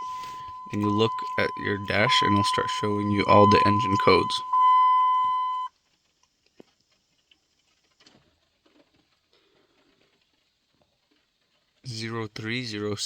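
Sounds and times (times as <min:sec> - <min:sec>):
high electronic chime beep: 0:00.0 - 0:05.7.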